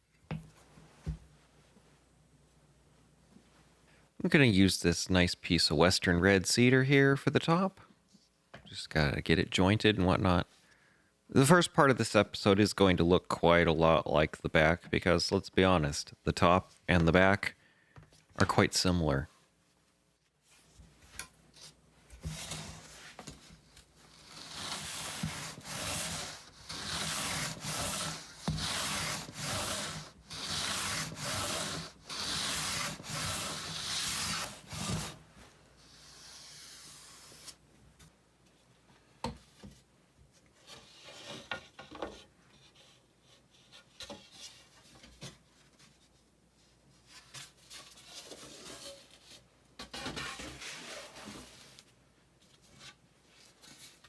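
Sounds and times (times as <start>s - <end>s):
tool rubbing along wood: 24.2s - 35.2s.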